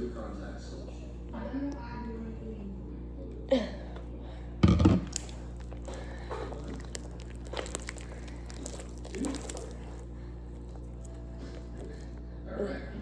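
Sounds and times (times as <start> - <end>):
steady low hum: 0.0 - 13.0
loud deep bump: 4.6 - 5.2
small clicks and crackles: 5.1 - 12.2.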